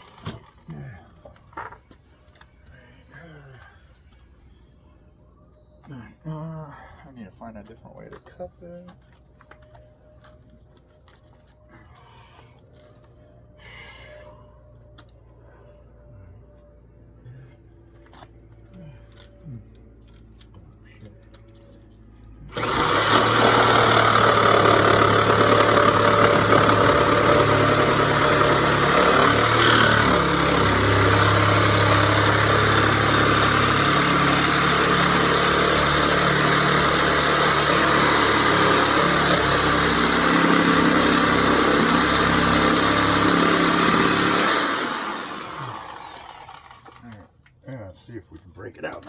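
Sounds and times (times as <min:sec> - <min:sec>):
power saw cutting with high whine: 0:22.2 - 0:47.1.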